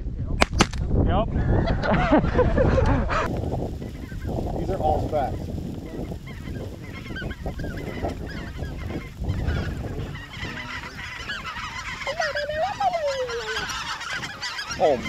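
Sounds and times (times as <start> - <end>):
wind noise rumble: 0.0 - 15.0
geese calling: 3.2 - 15.0.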